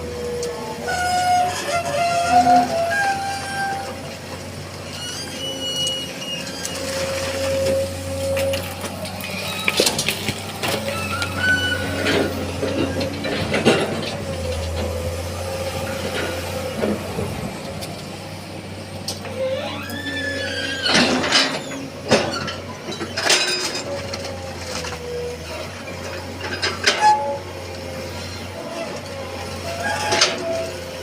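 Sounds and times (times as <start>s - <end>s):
excavator engine running: 0.0s - 31.0s
hydraulic whine: 0.0s - 31.0s.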